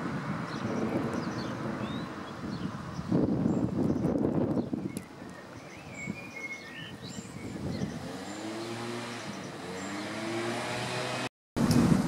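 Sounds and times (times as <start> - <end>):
vehicle engine driving by: 7.8 - 11.3.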